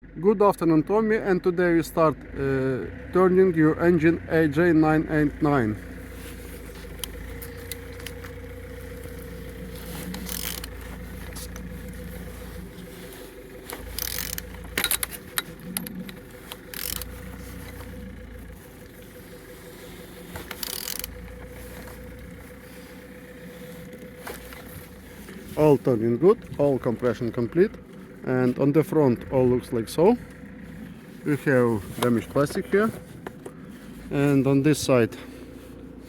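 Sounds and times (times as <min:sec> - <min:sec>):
steady hum: 0:03.8 - 0:36.0
metallic clicks and scrapes: 0:06.6 - 0:18.2, 0:20.1 - 0:22.5.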